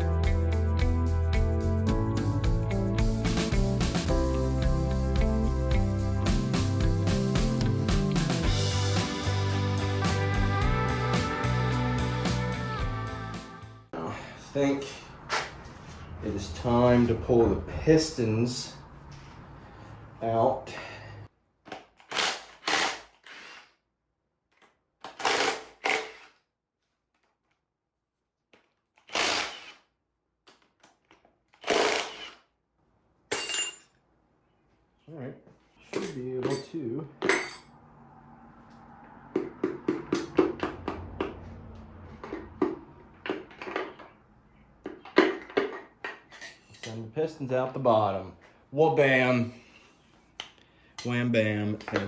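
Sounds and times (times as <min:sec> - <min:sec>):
power tool trigger bursts: 0:22.1 - 0:23.7, 0:25.2 - 0:26.3, 0:29.1 - 0:29.9, 0:31.6 - 0:32.4.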